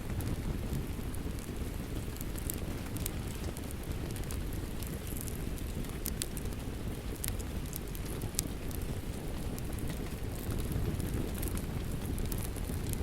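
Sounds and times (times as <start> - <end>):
rain falling: 0.0 - 13.0
wood fire crackling and popping: 0.0 - 13.0.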